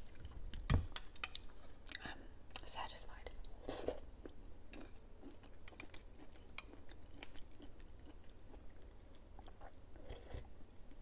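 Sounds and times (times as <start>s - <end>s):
person chewing jelly: 3.4s - 11.0s.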